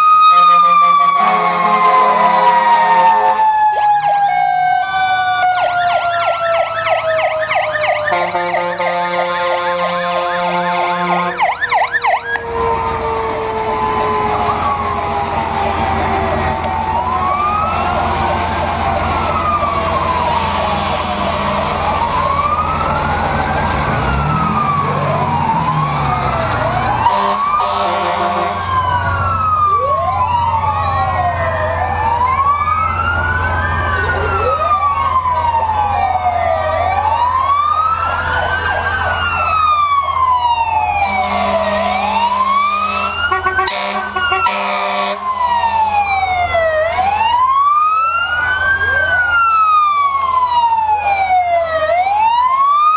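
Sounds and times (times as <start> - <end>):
sirens wailing: 0.0 - 52.9
truck engines humming: 0.0 - 52.9
horn blaring blasts: 0.3 - 3.4, 8.0 - 11.7, 20.1 - 22.0, 27.0 - 28.8, 41.0 - 45.4.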